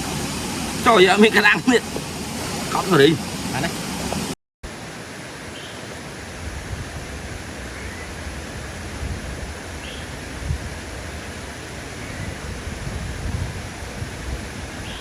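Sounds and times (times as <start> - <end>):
rushing hiss: 0.0 - 4.4.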